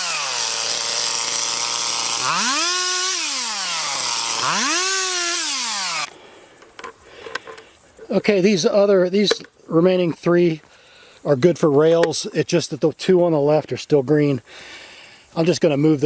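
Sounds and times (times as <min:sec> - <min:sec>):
chainsaw revving: 0:00.0 - 0:06.1.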